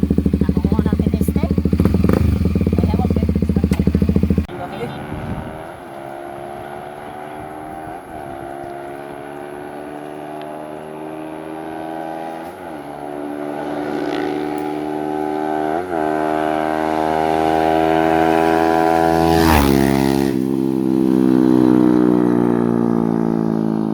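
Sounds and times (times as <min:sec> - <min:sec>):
motorcycle engine accelerating: 0:00.0 - 0:23.9.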